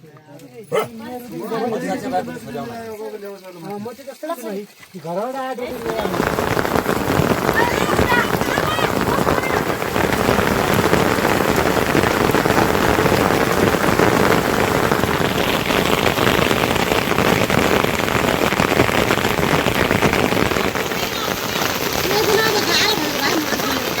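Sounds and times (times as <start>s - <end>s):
heavy rain: 5.6s - 24.0s.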